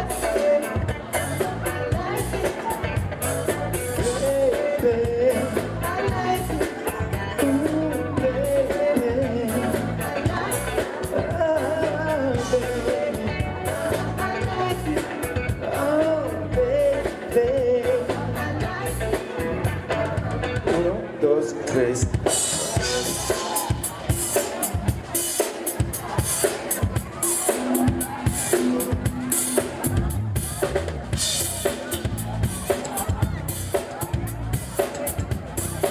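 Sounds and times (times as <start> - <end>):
person singing: 0.0 - 25.4
live band playing dance music: 0.0 - 35.9.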